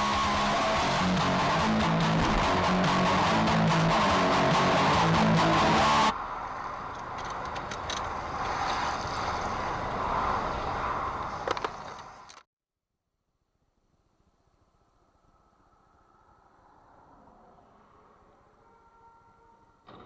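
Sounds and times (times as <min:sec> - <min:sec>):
guitar music: 0:00.0 - 0:06.1
car running with road noise: 0:00.0 - 0:12.5, 0:14.6 - 0:18.7.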